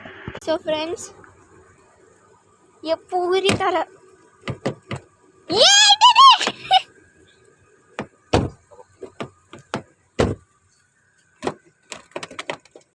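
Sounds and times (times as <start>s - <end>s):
car door handle and latch clicks: 11.4s - 12.9s.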